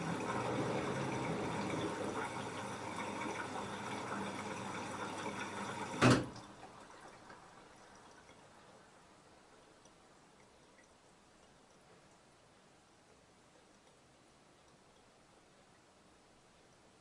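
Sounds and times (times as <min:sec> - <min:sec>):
water rushing into washing machine: 0:00.0 - 0:08.9
faint dripping: 0:00.0 - 0:17.0.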